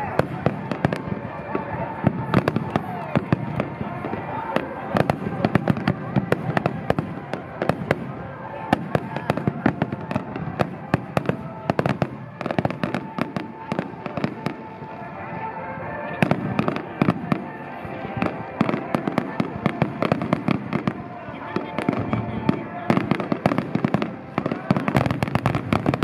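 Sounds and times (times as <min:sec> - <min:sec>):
fireworks bursting: 0:00.0 - 0:26.0
music: 0:00.0 - 0:26.0.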